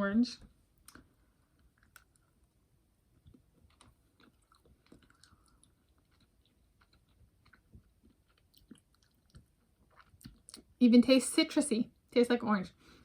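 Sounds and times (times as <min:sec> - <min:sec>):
chewing candy: 0:00.8 - 0:02.4, 0:03.1 - 0:10.7.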